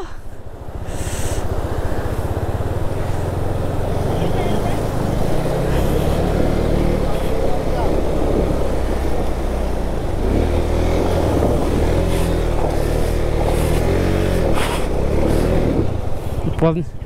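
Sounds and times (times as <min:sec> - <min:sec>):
water splashing: 0:00.0 - 0:16.4
motorcycle engine revving: 0:00.4 - 0:16.6.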